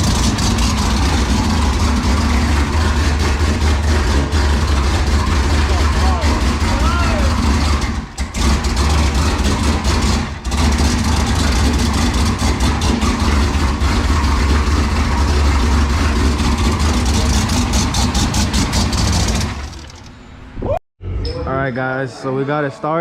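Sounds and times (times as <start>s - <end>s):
pickup engine idling: 0.0s - 20.4s.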